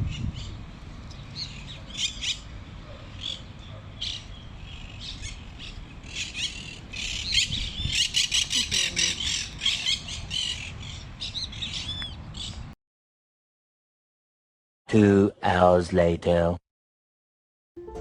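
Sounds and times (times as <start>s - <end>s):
birds chirping and squawking: 3.2s - 12.6s.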